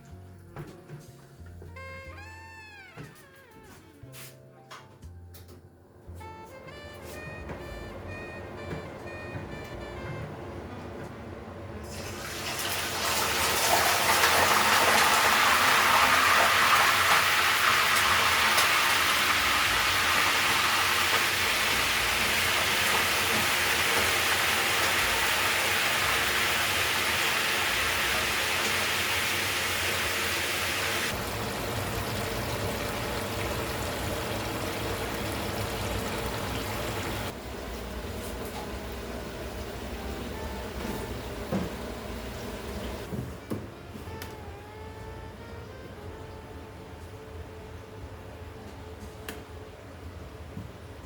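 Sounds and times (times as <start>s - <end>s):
water running: 11.8s - 43.1s.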